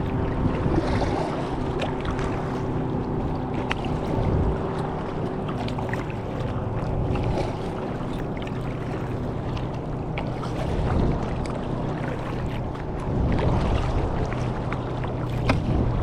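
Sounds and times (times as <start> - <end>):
faint motorboat hum: 0.0 - 16.0
water lapping against kayak hull: 0.0 - 16.0
wind buffeting microphone: 0.0 - 16.0
paddle drips and ticks: 0.8 - 15.8.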